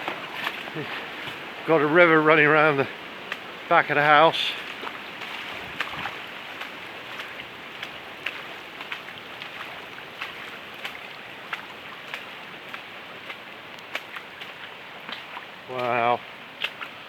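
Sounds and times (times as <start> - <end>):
raindrops ticking close by: 0.0 - 17.0
running floodwater: 0.0 - 17.0
heavy rain hissing: 0.6 - 7.4.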